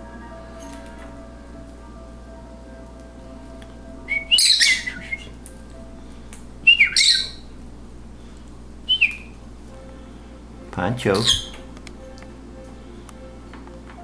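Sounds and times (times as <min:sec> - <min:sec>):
lovebird squawking: 0:04.1 - 0:05.4, 0:06.6 - 0:07.5, 0:08.9 - 0:09.4, 0:11.2 - 0:11.6.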